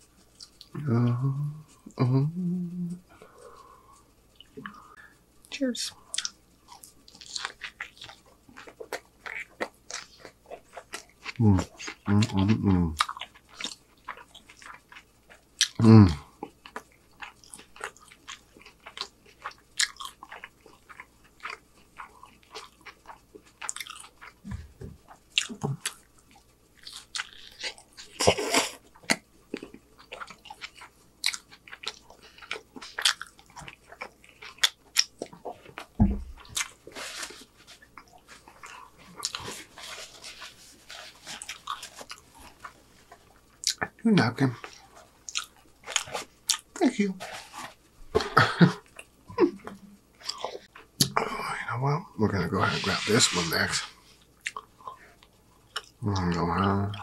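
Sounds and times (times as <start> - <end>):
man chewing: 0.0 - 5.2, 6.0 - 44.0, 44.6 - 51.2, 52.7 - 57.0
man humming: 0.7 - 3.1, 15.8 - 16.2
paper napkin rustling: 39.4 - 42.3, 52.6 - 54.0.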